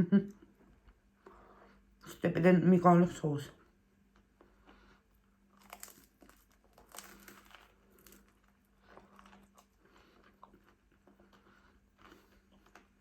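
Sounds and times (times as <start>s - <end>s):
wet chewing: 4.1s - 13.0s.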